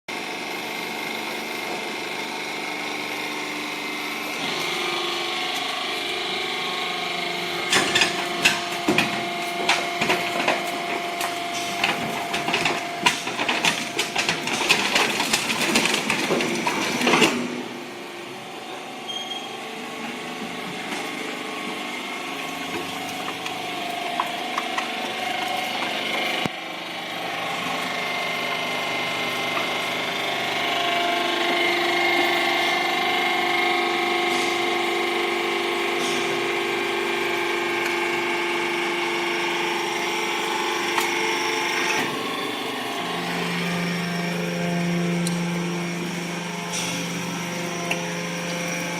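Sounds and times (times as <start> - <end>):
hydraulic pump hum: 0.1 - 48.9
scrap metal crunching and clanking: 4.4 - 17.8, 21.8 - 26.5.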